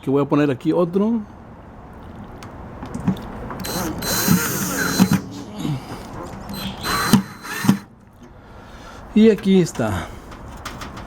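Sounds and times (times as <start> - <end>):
metal scraping and rattling: 2.7 - 8.3.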